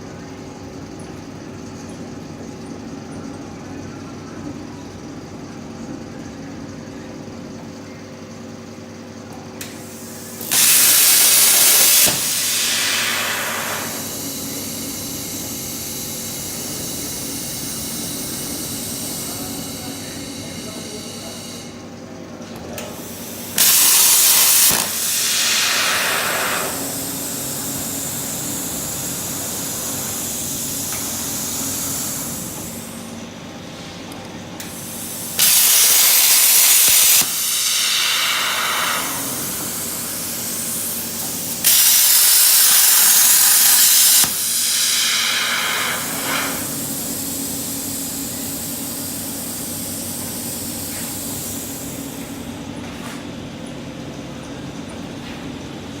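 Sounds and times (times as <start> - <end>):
steady machine hum: 0.0 - 56.0
plasma cutter torch hissing: 9.6 - 22.0, 22.8 - 33.2, 34.6 - 52.6.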